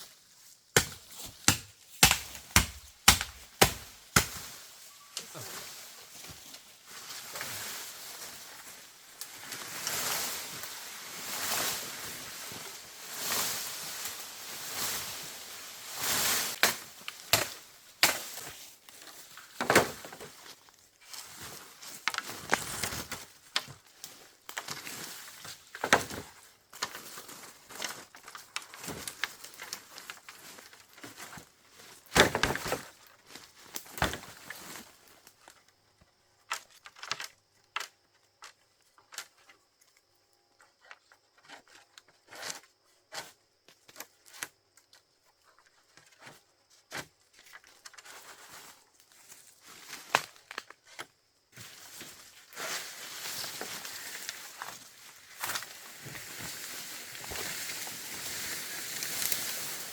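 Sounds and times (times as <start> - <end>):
chopping and knocking strokes: 0.8 - 4.4
crinkling rustling handling noise: 51.6 - 59.9.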